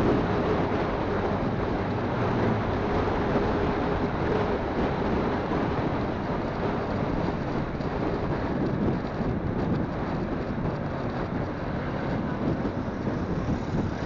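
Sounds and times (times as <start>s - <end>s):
motorcycle engine hum: 0.0s - 14.0s
wind rush on microphone: 0.0s - 14.0s.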